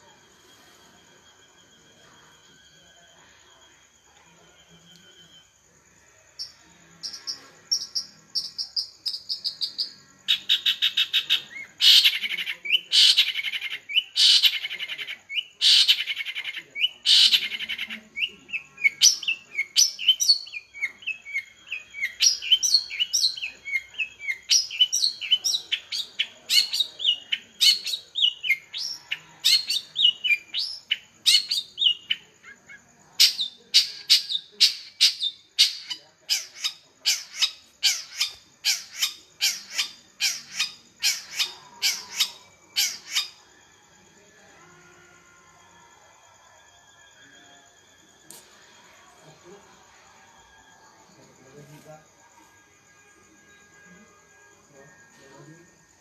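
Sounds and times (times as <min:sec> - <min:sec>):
shrike singing: 0:00.0 - 0:56.0.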